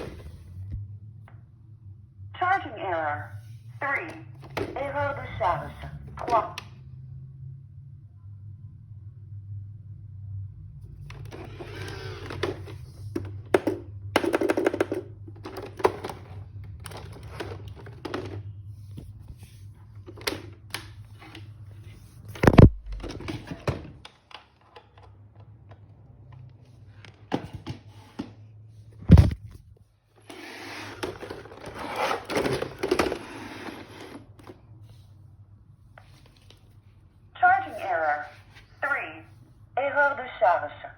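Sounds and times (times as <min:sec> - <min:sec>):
robot vacuum bumping furniture: 0:29.0 - 0:29.5.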